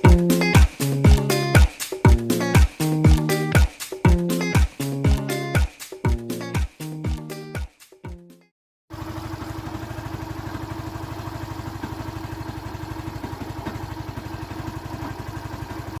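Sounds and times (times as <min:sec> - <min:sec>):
music: 0:00.0 - 0:08.5
motorcycle engine idling: 0:08.9 - 0:16.0.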